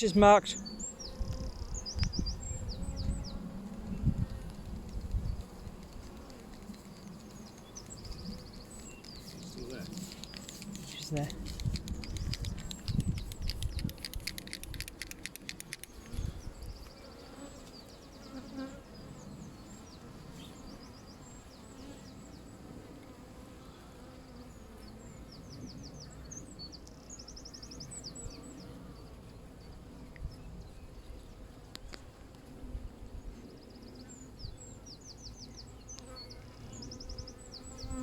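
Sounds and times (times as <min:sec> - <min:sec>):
small bird singing: 0:00.0 - 0:05.4, 0:06.7 - 0:22.5, 0:33.5 - 0:38.0
honeybees humming: 0:00.0 - 0:38.0.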